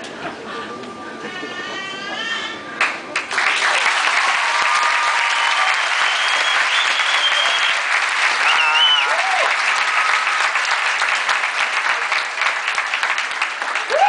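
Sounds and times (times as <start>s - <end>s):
audience applauding: 2.8s - 14.0s
cheering shout: 3.5s - 10.8s, 13.8s - 14.0s
whistles: 5.3s - 9.1s.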